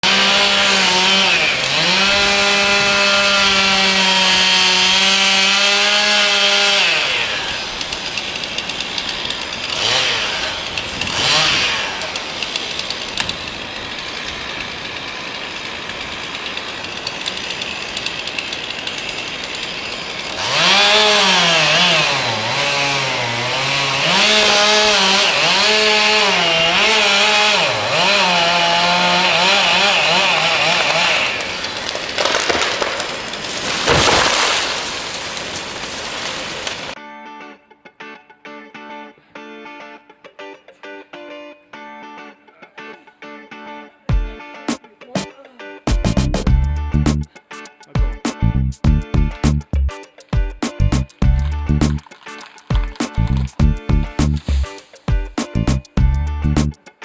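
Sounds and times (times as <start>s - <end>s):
chainsaw revving: 0.0s - 37.0s, 45.9s - 47.4s, 50.6s - 57.0s
noise without engine tone: 45.9s - 47.3s, 48.4s - 49.9s, 50.8s - 52.1s, 52.8s - 56.8s.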